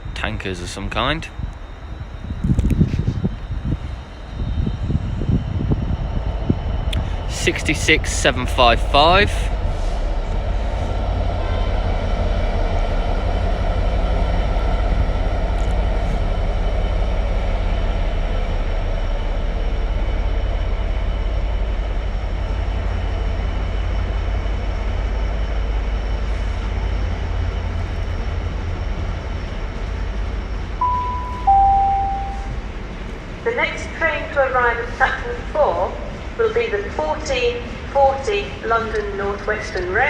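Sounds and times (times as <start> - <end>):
train wheels rumbling on rails: 0.0 - 31.5
two-note chime: 30.8 - 32.6.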